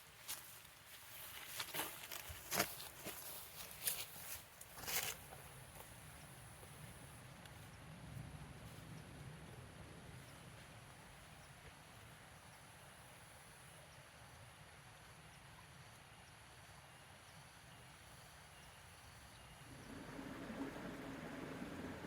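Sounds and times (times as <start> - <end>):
low steady rumble: 6.0 - 11.5, 19.5 - 22.0
rushing noise: 19.8 - 22.0.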